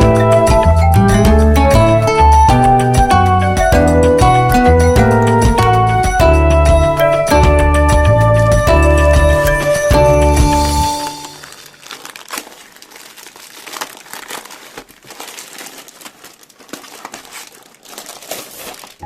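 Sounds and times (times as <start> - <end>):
background music: 0.0 - 12.2
packaging crinkling: 11.0 - 19.0.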